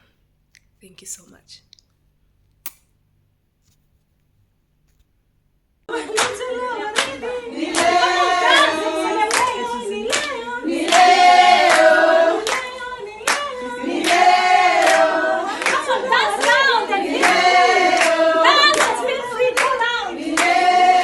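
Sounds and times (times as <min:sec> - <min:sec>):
group of voices singing: 0:05.9 - 0:21.0
hand claps keeping time: 0:06.1 - 0:20.9.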